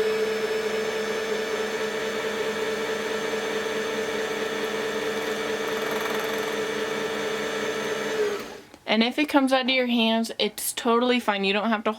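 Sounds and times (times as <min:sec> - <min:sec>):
sewing machine motor whine: 0:02.2 - 0:08.6.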